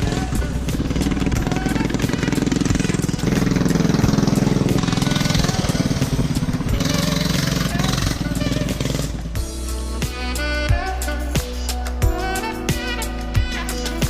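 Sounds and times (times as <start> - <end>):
small engine chugging: 0.0 - 9.4.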